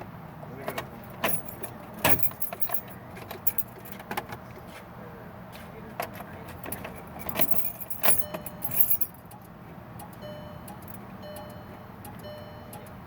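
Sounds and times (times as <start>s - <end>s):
key jangling in ignition: 0.8s - 4.1s, 6.5s - 9.4s, 10.0s - 12.9s
car starter clicking: 10.0s - 13.0s
electronic warning tone: 10.2s - 12.9s.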